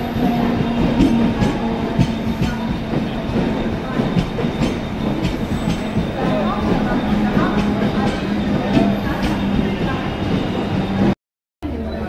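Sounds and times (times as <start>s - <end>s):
train rumble and hum: 0.0s - 12.0s.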